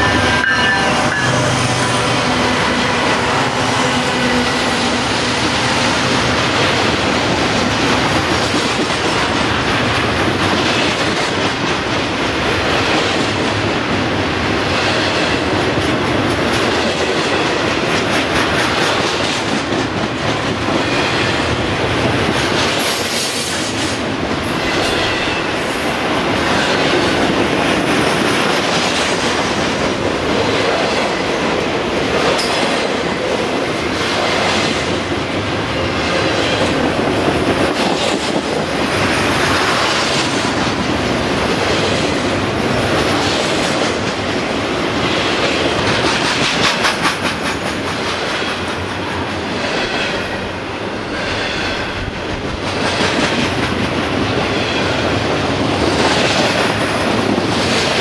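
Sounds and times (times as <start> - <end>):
train wheel squeal: 0.0 - 2.6, 22.9 - 24.0
freight train wheels clacking: 0.0 - 58.0.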